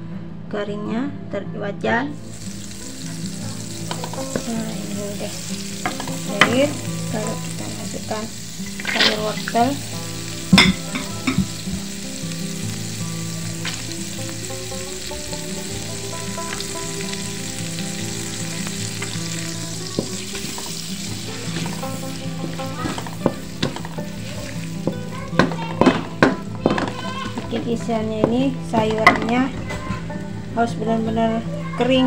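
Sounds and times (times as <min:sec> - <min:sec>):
carrots sizzling in a wok: 0:02.1 - 0:32.0
spatula scraping and tapping pan: 0:03.8 - 0:07.7, 0:10.5 - 0:11.9, 0:19.8 - 0:30.1.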